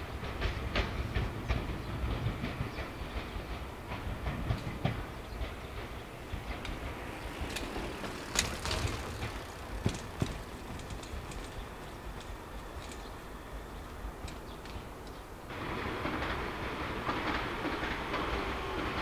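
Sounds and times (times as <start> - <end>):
low train running rumble: 0.0 - 19.0
train wheels clanking over rail joints: 0.0 - 19.0.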